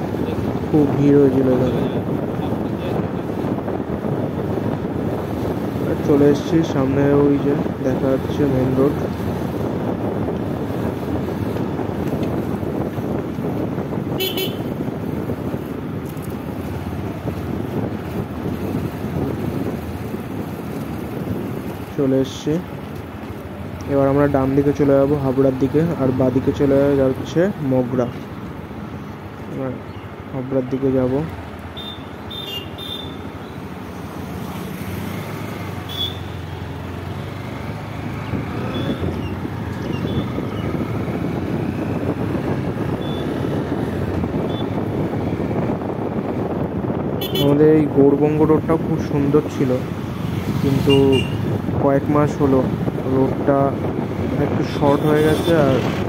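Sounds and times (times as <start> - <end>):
motorcycle riding noise: 0.0 - 56.0
wind rumble: 0.0 - 56.0.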